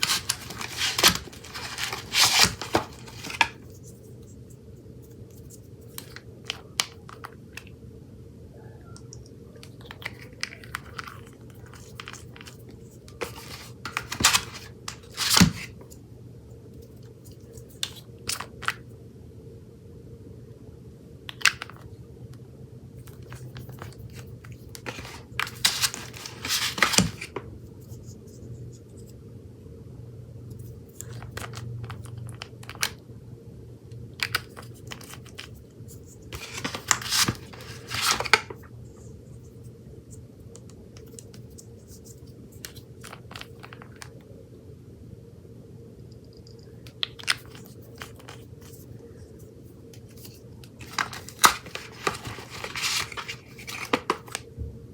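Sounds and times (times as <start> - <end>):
crackling and scraping: 0.0 - 7.3, 23.0 - 29.1, 34.2 - 39.6, 46.5 - 54.5.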